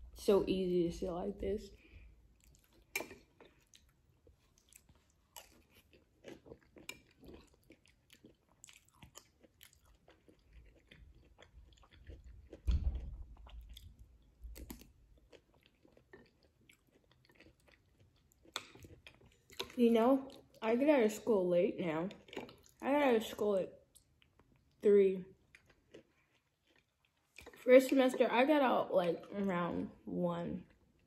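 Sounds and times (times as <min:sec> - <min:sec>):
quiet chewing and mouth noises: 0:01.7 - 0:20.7, 0:22.0 - 0:22.9, 0:23.7 - 0:28.4, 0:30.6 - 0:31.0
low thump: 0:12.6 - 0:13.2.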